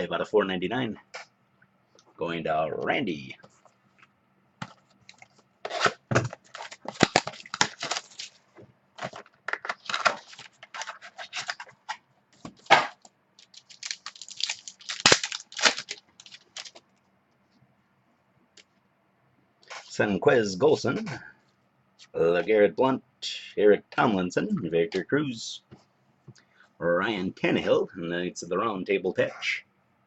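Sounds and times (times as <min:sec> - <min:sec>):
card packaging tearing and crackling: 0:05.6 - 0:08.4, 0:09.0 - 0:11.9, 0:12.6 - 0:16.8.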